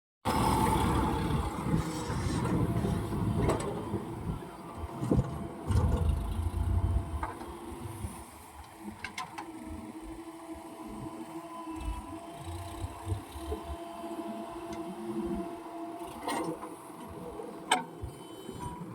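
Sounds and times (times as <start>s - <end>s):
heavy machinery rumbling: 0.3s - 8.2s.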